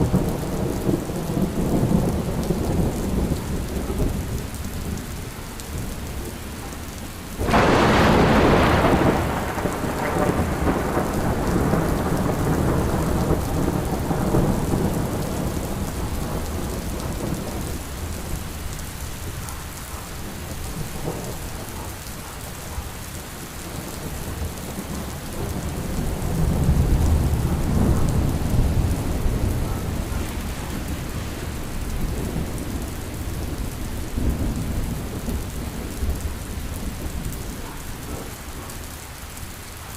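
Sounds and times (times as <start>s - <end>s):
low thunder rolling: 0.0s - 38.7s
steady rain: 0.0s - 39.9s
thunderclap rolling into rumble: 7.4s - 22.8s, 23.6s - 38.6s.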